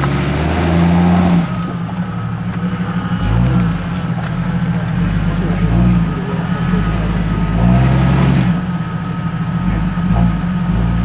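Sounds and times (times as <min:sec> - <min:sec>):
engine revving under load: 0:00.0 - 0:11.0.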